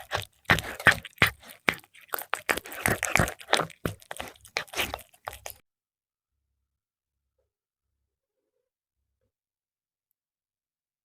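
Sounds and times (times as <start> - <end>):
cat crunching and chewing: 0.0 - 5.6.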